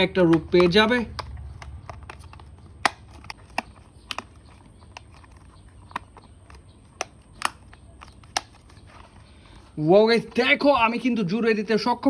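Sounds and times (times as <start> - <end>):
plastic toy parts clicking together: 0.0 - 9.2.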